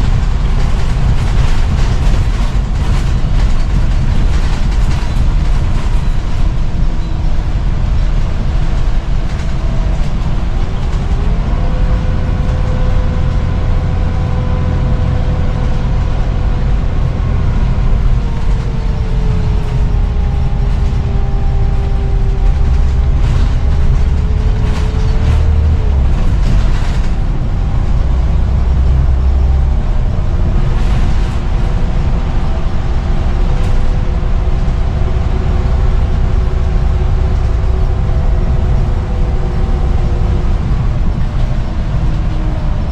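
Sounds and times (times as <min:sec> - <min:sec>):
bus diesel engine rumble: 0:00.0 - 0:42.9
drivetrain whine: 0:00.0 - 0:42.9.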